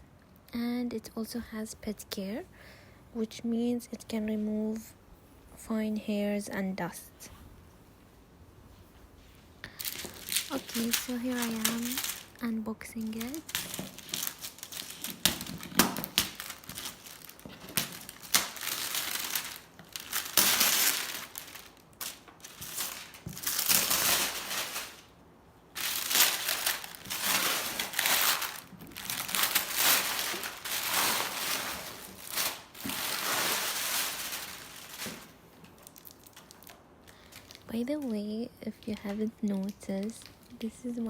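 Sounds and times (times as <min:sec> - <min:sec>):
packaging crinkling and rustling: 0:09.7 - 0:25.2, 0:25.8 - 0:41.0.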